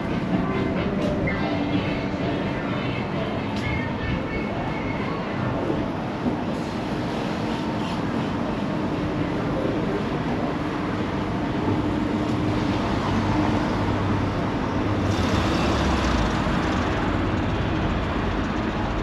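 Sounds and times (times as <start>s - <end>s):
engine running: 14.9s - 19.0s.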